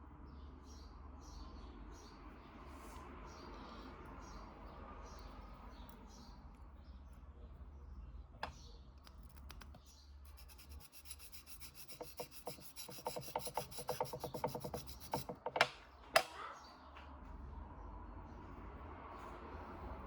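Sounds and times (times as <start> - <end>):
sharpening stone rubbing metal: 10.2 - 15.5.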